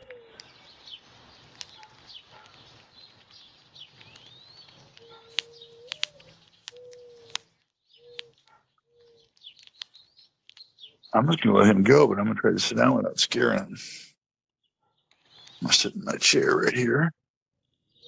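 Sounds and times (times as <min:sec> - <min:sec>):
low cooing: 0:00.0 - 0:00.5, 0:05.0 - 0:07.4
small birds chirping: 0:00.0 - 0:13.6, 0:14.8 - 0:16.7, 0:17.7 - 0:18.0
sharp clicks: 0:01.4 - 0:08.5, 0:09.2 - 0:10.8.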